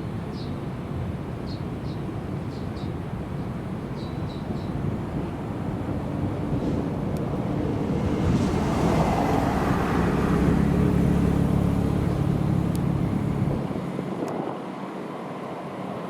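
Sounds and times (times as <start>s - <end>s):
sports car engine at low revs: 5.6s - 14.1s.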